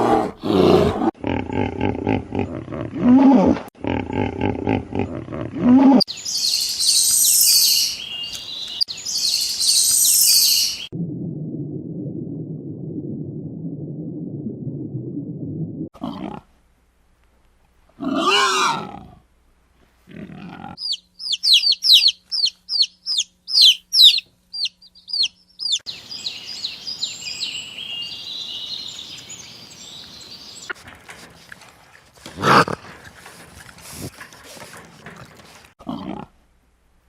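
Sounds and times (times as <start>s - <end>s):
high whistled bird calls: 6.2s - 10.9s, 20.8s - 30.6s.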